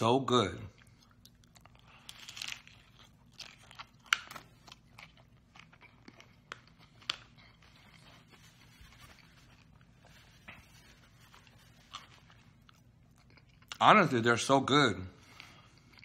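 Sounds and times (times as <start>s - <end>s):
person crunching crisp shell: 0.7s - 10.2s, 11.1s - 13.8s.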